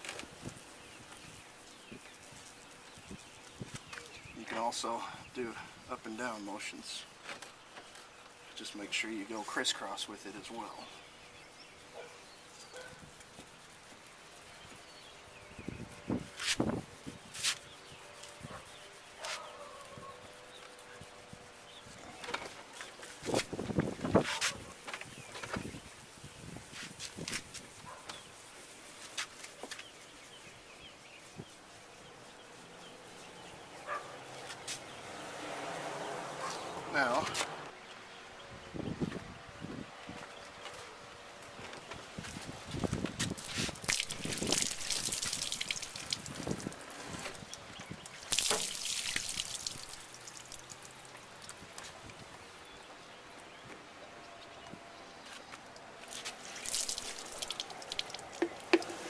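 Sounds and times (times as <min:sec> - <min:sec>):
faint outdoor ambience: 0:00.0 - 0:59.0
water trickling and dripping: 0:43.3 - 0:52.5, 0:55.6 - 0:59.0
water splashing rush: 0:43.4 - 0:51.6, 0:56.1 - 0:59.0.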